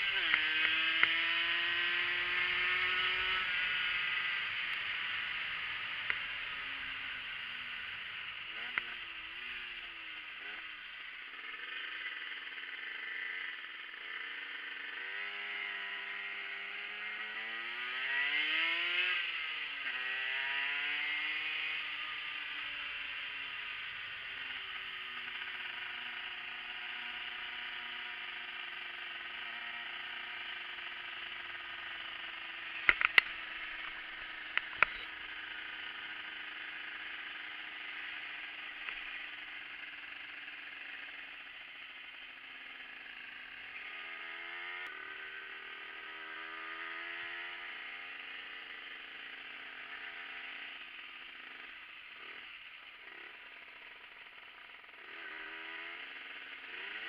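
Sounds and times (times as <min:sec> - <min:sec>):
motorcycle engine while riding: 0:00.0 - 0:57.0
sharp clicks or knocks: 0:32.8 - 0:33.3.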